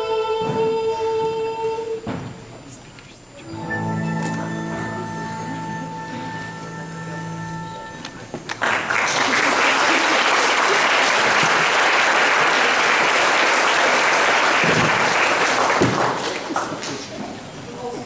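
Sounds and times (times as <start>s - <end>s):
held musical chord: 3.4s - 8.9s
audience applauding: 8.4s - 17.2s.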